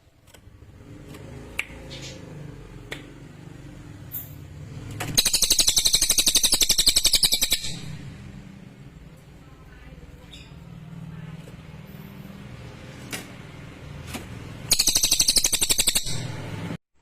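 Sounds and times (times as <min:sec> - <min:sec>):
songbird rattling trill: 0:05.2 - 0:08.0, 0:14.6 - 0:16.4.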